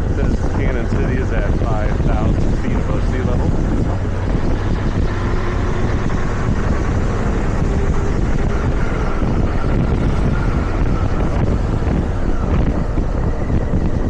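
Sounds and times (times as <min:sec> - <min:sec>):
motorcycle engine running: 0:00.0 - 0:14.0
wind buffeting microphone: 0:00.0 - 0:14.0.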